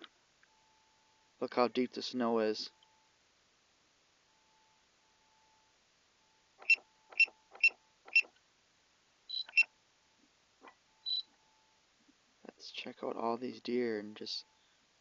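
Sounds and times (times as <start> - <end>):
short high beeps: 9.3 - 9.7, 11.0 - 11.3.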